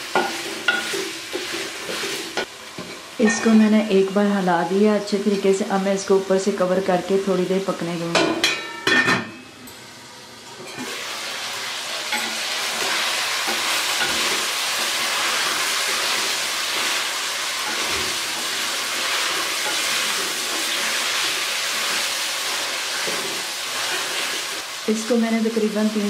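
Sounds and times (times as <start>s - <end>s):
chicken sizzling in oil: 0.0s - 5.8s, 10.7s - 26.0s
wooden spatula stirring: 0.4s - 2.4s.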